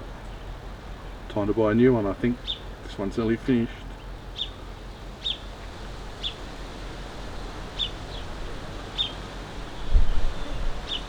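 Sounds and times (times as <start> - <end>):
low outdoor background hum: 0.0 - 11.0
bird chirping: 2.2 - 5.6, 6.2 - 6.4, 7.7 - 8.3, 8.9 - 11.0.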